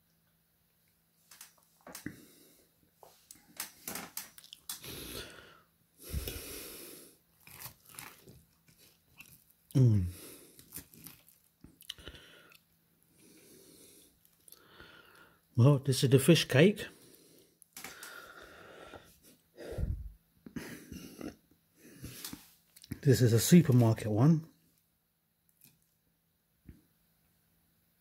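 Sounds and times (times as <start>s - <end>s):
breaths: 2.0s - 3.7s, 4.8s - 7.2s, 9.9s - 10.8s, 11.9s - 15.5s, 16.9s - 20.7s
person chewing: 4.2s - 5.4s, 6.1s - 14.6s.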